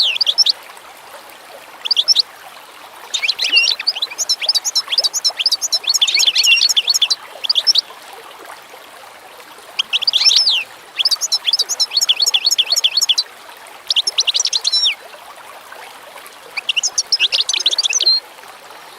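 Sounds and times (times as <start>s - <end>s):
songbirds chirping: 0.0s - 0.6s, 1.8s - 2.2s, 3.0s - 7.9s, 9.6s - 15.0s, 16.5s - 18.2s
water trickling: 0.0s - 18.9s.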